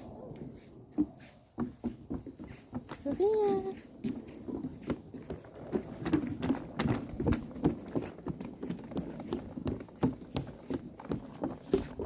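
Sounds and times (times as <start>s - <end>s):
footsteps on forest path: 0.0s - 12.0s.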